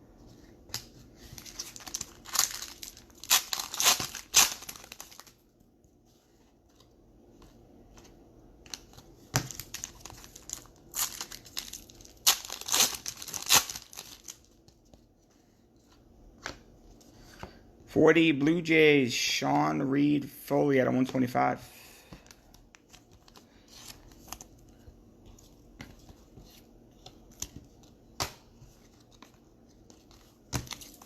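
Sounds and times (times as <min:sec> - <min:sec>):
foil wrappers tearing and crinkling: 0:01.4 - 0:05.4, 0:09.5 - 0:14.5.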